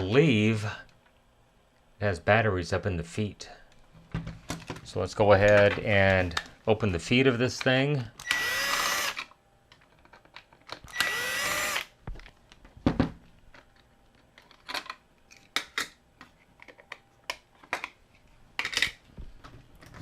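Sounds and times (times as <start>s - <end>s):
electric screwdriver whirring: 8.2s - 9.3s, 10.9s - 11.9s
plastic parts clicking: 13.5s - 18.0s.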